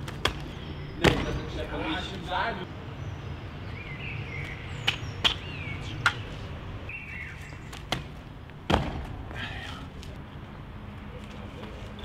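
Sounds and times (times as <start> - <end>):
low outdoor hum: 0.0 - 12.0
birds chirping: 0.2 - 8.0.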